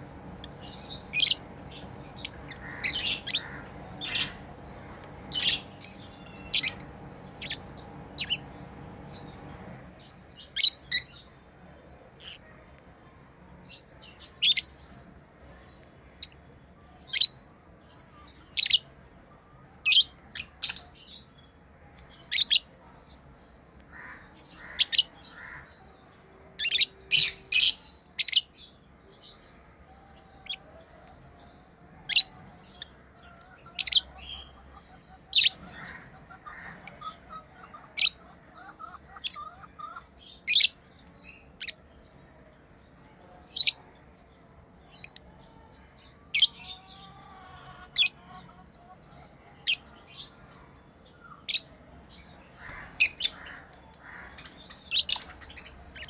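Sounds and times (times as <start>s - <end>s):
lovebirds chirping: 0.0s - 11.2s, 30.2s - 56.0s
quiet bird chattering: 0.0s - 11.2s, 30.4s - 42.0s, 52.5s - 56.0s.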